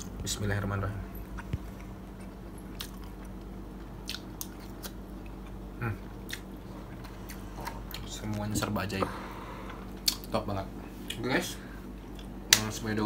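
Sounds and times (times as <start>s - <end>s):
faint steady hum: 0.0s - 13.0s
person chewing: 1.2s - 8.7s, 9.6s - 10.3s.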